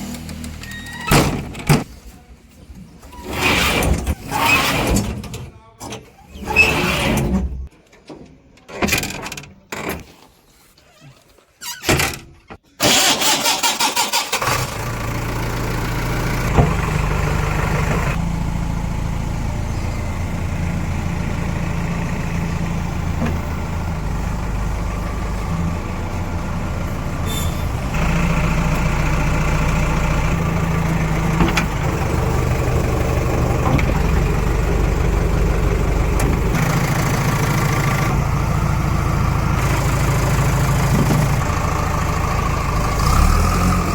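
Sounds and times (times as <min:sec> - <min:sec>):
starter motor cranking: 0:12.8 - 0:14.9
diesel engine running: 0:13.7 - 0:43.9.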